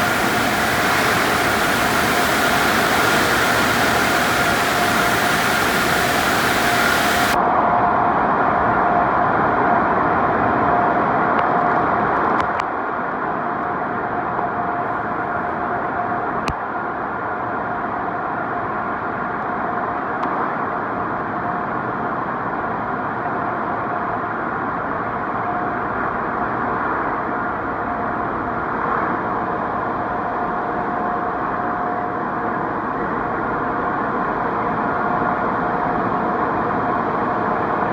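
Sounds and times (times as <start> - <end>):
car wash machinery running: 0.0 - 7.4
faint steady tone: 0.0 - 7.4.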